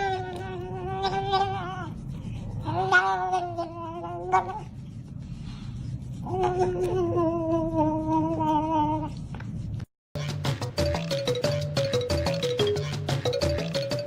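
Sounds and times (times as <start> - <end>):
cat yowling: 0.0 - 2.0.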